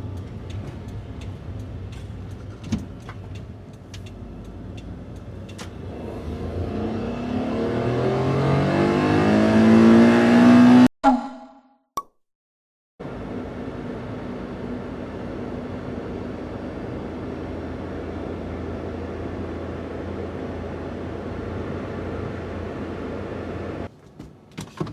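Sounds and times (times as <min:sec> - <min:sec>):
van engine revving: 0:00.0 - 0:10.9
light ticks: 0:00.1 - 0:02.4, 0:03.0 - 0:05.7.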